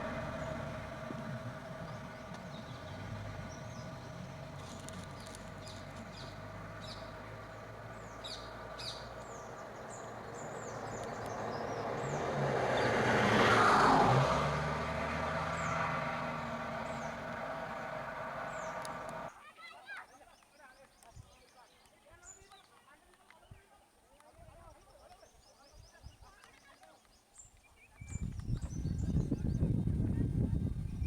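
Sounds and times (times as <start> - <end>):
birds chirping: 0.0 - 19.3
steady engine hum: 0.0 - 19.3
vehicle passing: 0.0 - 19.3.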